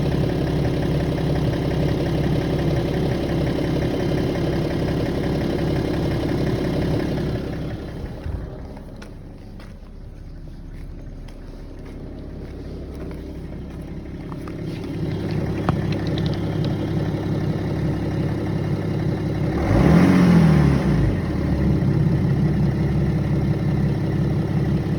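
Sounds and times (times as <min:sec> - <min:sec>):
diesel engine idling: 0:00.0 - 0:24.9
engine knocking: 0:00.0 - 0:24.9
engine revving: 0:00.0 - 0:24.9.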